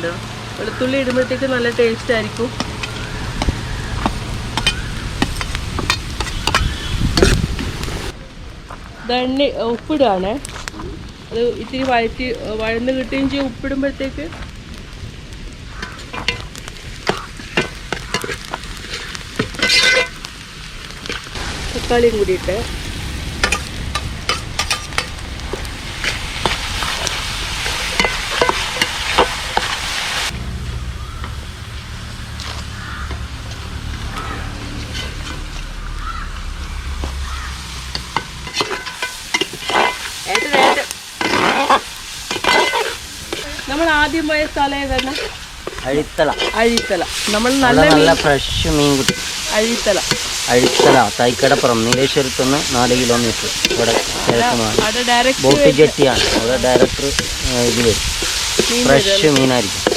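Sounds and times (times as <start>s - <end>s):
vegetables sizzling in oil: 0.0s - 8.2s, 9.0s - 59.9s
spoon scraping pan: 15.8s - 20.2s, 34.3s - 35.6s, 37.9s - 59.9s
spoon stirring and knocking pan: 15.8s - 20.2s, 37.9s - 43.7s, 44.9s - 51.1s.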